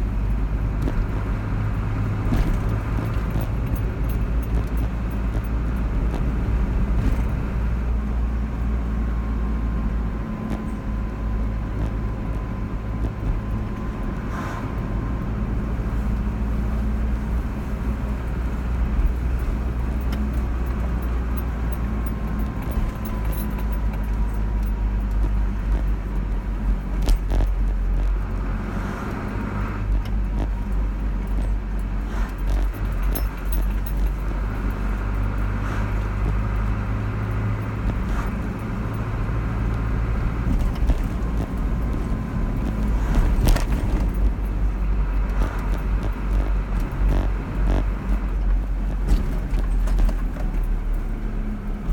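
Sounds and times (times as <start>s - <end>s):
car engine and road noise: 0.0s - 51.9s
small clicks and rattles: 0.2s - 7.4s, 17.6s - 51.9s.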